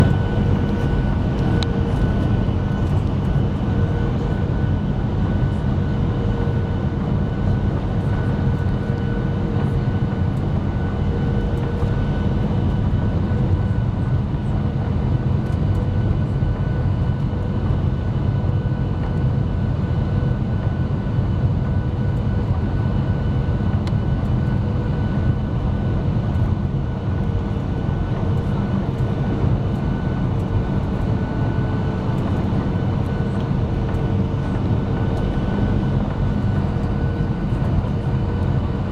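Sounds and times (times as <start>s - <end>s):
jet engines roaring: 0.0s - 5.6s, 27.1s - 38.9s.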